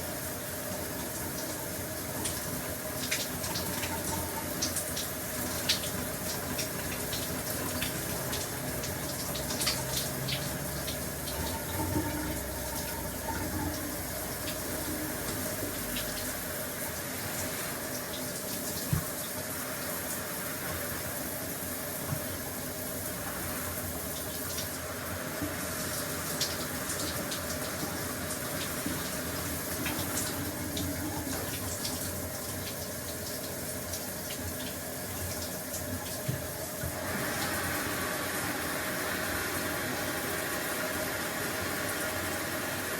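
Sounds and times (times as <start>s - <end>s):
shower water spraying: 0.0s - 42.9s.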